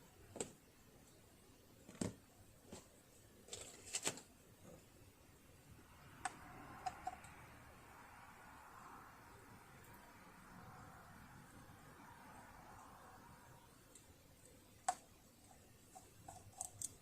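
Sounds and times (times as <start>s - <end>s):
small metal tools clicking: 16.0s - 17.0s.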